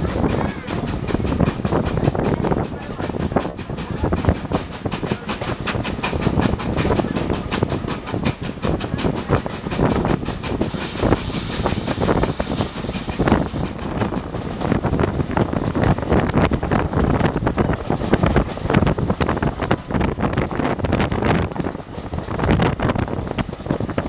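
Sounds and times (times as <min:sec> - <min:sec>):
train running along tracks: 0:00.0 - 0:24.0.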